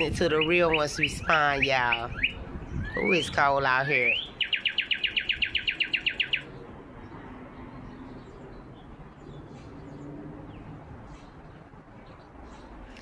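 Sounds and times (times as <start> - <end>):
fast trill of bird-like notes: 0.0 - 6.5.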